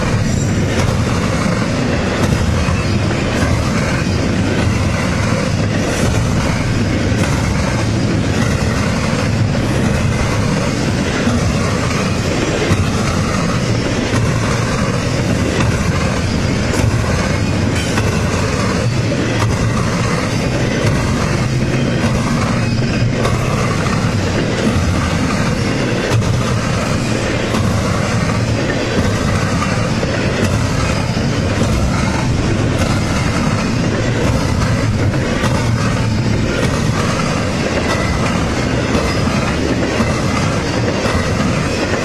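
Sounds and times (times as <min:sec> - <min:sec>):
freight train wheels rumbling: 0:00.0 - 0:42.0
wheels clicking over rail joints: 0:00.0 - 0:42.0.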